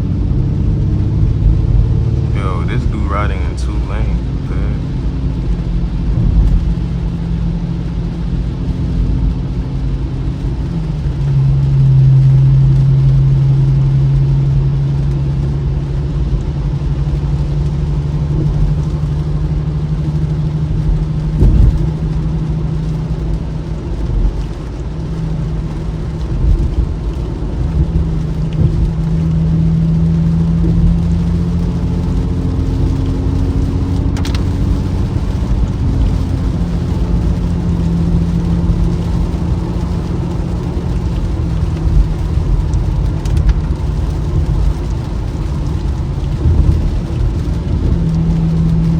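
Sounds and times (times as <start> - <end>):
car engine note: 0.0 - 8.4
tyre and road noise: 0.0 - 48.9.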